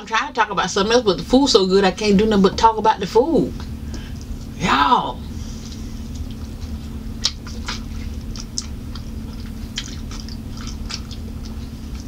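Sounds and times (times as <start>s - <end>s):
steady low hum: 0.0s - 12.0s
person chewing and lip-smacking: 5.7s - 12.0s.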